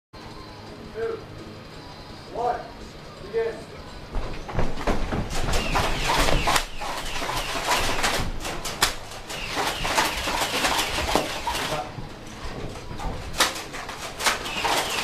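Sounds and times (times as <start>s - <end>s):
rustling and scuffling: 3.9s - 15.0s.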